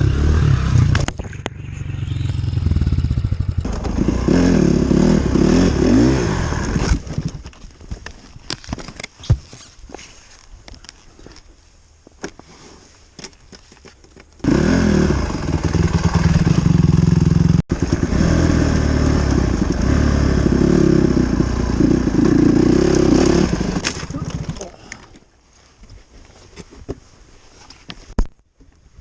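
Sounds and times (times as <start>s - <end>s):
dirt bike engine running: 0.0s - 6.8s, 14.4s - 24.7s.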